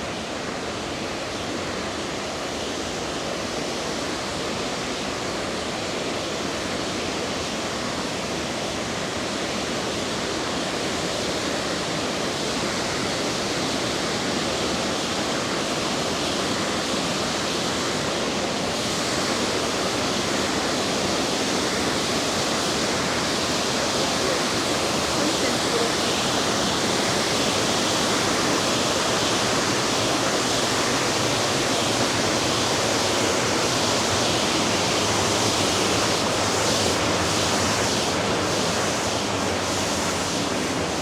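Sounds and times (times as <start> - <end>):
river water rushing over rocks: 18.3 - 41.0.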